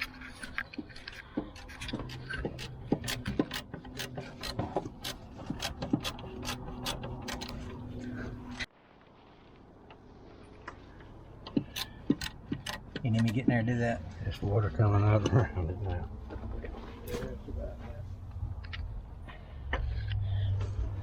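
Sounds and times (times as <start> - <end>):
socket ratchet clicking: 1.6 - 7.6, 11.6 - 13.0.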